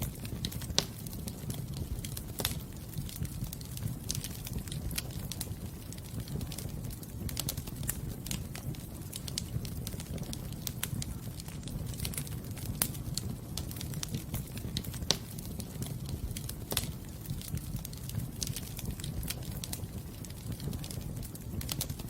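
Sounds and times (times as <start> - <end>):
fireplace fire crackling: 0.0 - 22.0.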